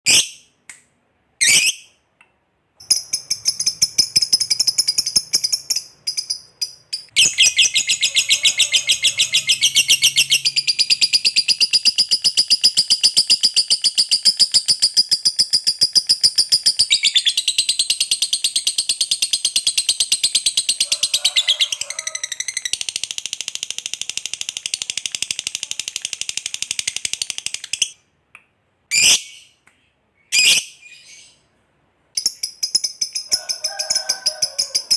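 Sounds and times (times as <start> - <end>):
lovebird chattering trill: 2.8 - 23.2.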